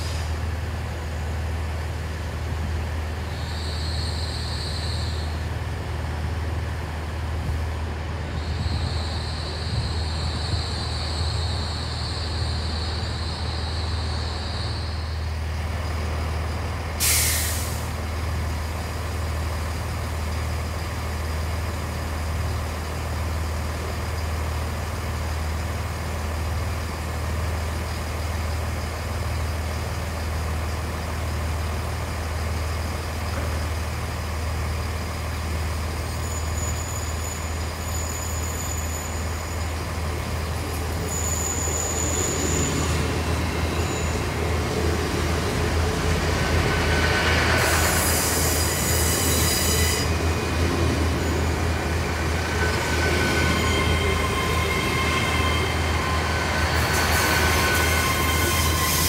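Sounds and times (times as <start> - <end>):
diesel train humming: 0.0 - 59.0
train arriving rumble: 0.0 - 59.0
high squeal: 3.3 - 5.6, 8.3 - 15.4, 36.0 - 59.0
air hiss: 17.0 - 18.0.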